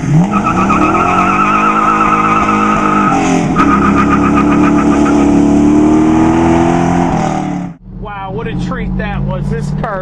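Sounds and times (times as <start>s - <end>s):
car engine accelerating hard: 0.0s - 10.0s
warbling tyre squeal: 0.1s - 5.6s.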